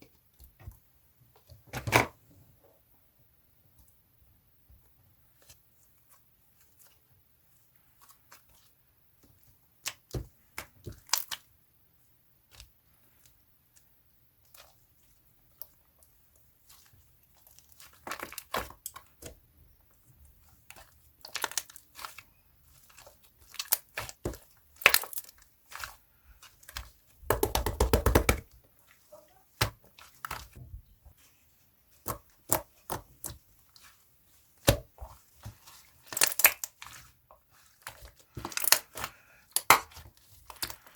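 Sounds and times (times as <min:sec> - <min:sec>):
slime popping and crackling: 0:22.8 - 0:28.5, 0:34.6 - 0:40.9.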